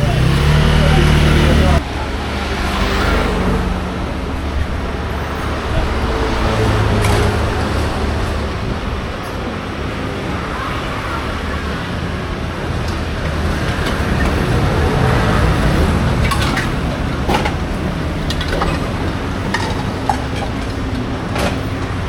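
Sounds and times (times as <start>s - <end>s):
street bustle: 0.0s - 22.0s
traffic rumble: 0.0s - 22.0s
sharp clacks and knocks: 15.6s - 22.0s.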